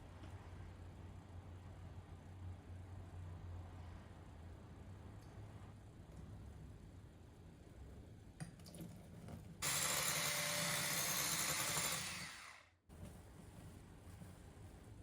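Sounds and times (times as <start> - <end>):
kitchen appliance motor running: 9.6 - 12.7.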